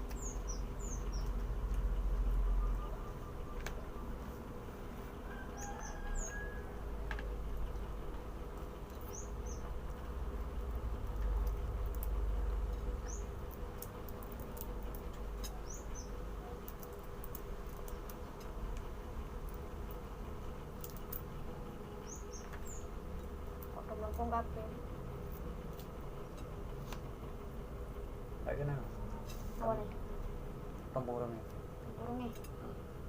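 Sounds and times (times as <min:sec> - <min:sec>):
small bird chirping: 0:00.0 - 0:04.4, 0:05.3 - 0:06.8, 0:08.9 - 0:09.8, 0:12.9 - 0:14.6, 0:15.4 - 0:18.2, 0:21.9 - 0:24.8.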